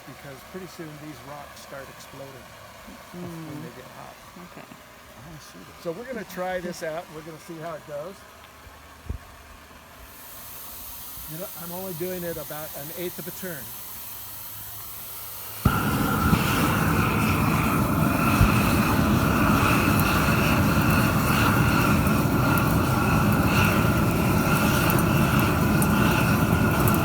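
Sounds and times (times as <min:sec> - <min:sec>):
gas flame rushing: 0:10.1 - 0:27.0
burner lighting pop: 0:15.6 - 0:27.0.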